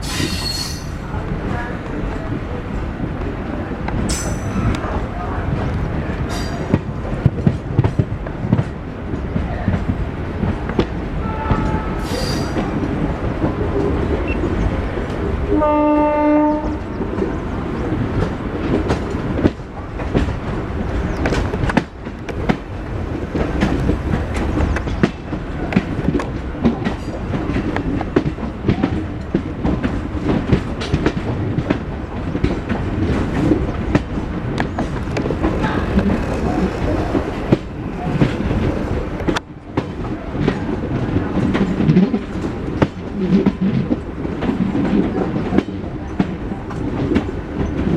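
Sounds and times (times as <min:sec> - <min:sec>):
electric train rumbling: 0:00.0 - 0:47.9
wheels clattering over rail joints: 0:03.9 - 0:47.9
train horn: 0:11.2 - 0:12.5, 0:15.5 - 0:17.0.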